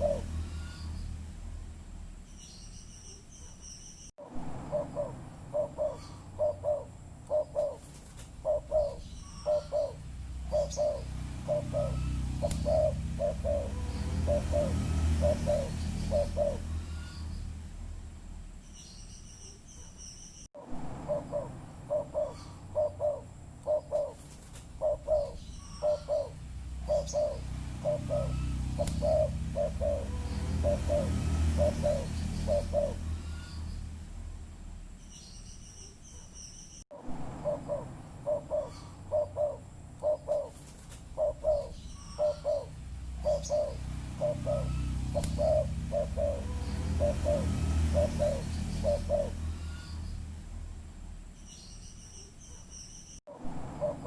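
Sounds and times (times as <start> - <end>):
dove cooing: 0.0 - 0.8, 4.7 - 17.2, 21.1 - 33.5, 37.4 - 49.8, 53.8 - 54.0
small bird chirps: 2.2 - 4.1, 4.8 - 17.6, 18.6 - 20.5, 21.2 - 33.9, 35.0 - 36.9, 37.5 - 50.3, 51.3 - 53.2
low background rumble: 4.2 - 19.3, 20.6 - 35.4, 37.0 - 51.5.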